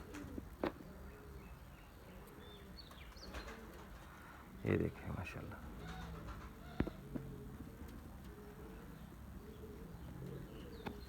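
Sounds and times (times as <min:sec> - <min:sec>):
pigeons cooing: 0:00.0 - 0:04.7, 0:05.6 - 0:11.0.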